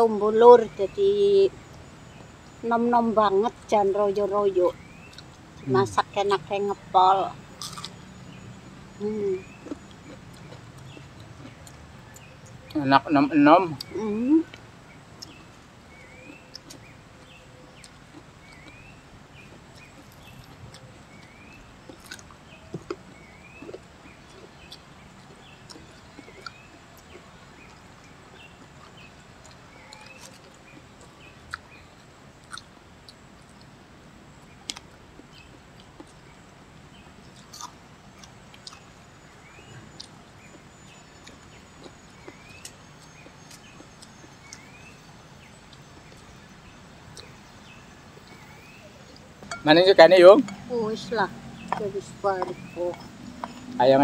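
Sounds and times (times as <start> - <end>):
bird chirping: 0.0 - 33.8, 34.4 - 54.0
people chewing and smacking: 4.8 - 6.0, 7.5 - 54.0.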